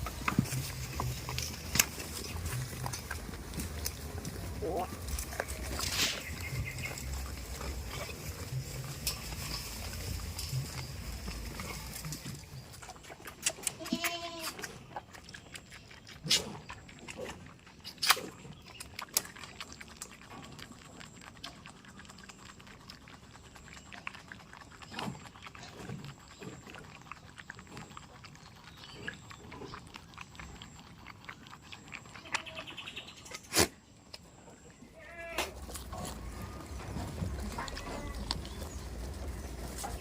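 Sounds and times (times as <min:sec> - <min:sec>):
goats rustling and knocking: 0:00.0 - 0:14.5, 0:35.1 - 0:40.0.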